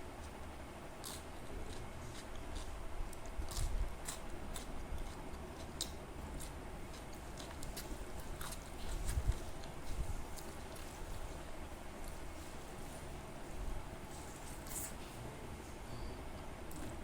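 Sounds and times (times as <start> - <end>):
person chewing food: 0.2 - 11.4.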